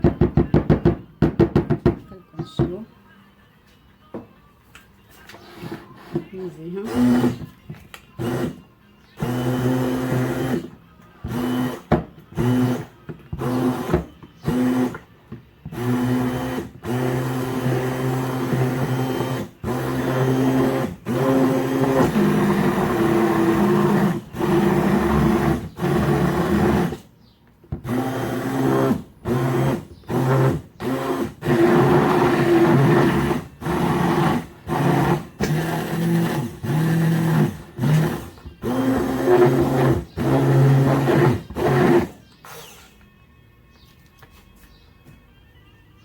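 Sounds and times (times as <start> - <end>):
electric blender motor pulsing: 6.9 - 7.5, 8.2 - 8.6, 9.2 - 10.7, 11.3 - 15.0, 15.7 - 27.1, 27.8 - 42.9.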